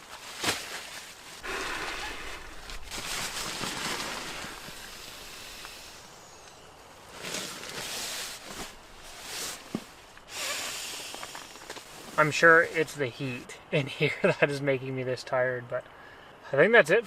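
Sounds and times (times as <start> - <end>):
plastic bag rustling: 0.0 - 5.9, 7.0 - 10.1.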